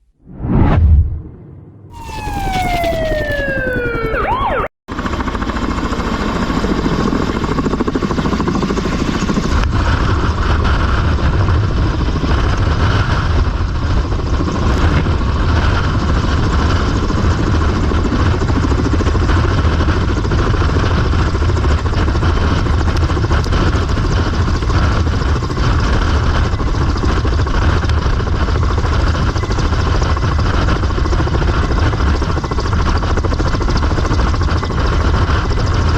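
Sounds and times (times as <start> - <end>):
falling siren-like glide: 0.3 - 4.7
helicopter engines and rotor: 1.9 - 35.9.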